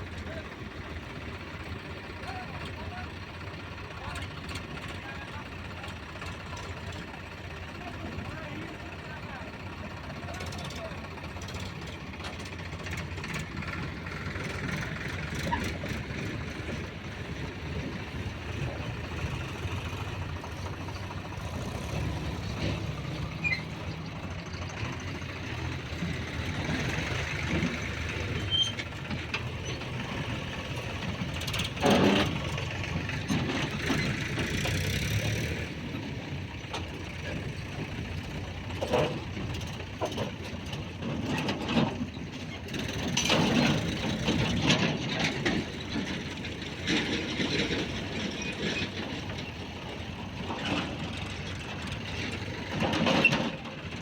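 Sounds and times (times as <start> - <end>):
heavy vehicle engine running: 0.0 - 54.0.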